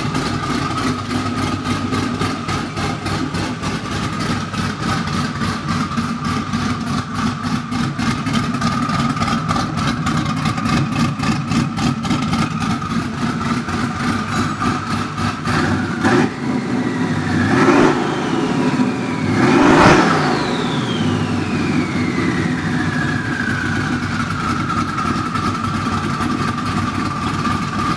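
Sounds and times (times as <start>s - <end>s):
car engine idling with whine: 0.0s - 27.9s
engine revving: 1.1s - 24.8s
turbo whistle spinning down: 17.3s - 24.2s.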